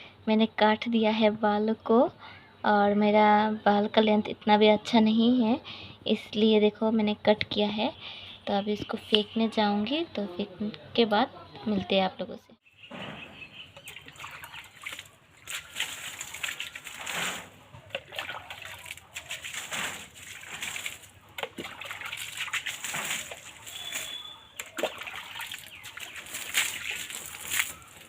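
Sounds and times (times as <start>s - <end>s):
water splashing and sloshing: 12.8s - 28.0s.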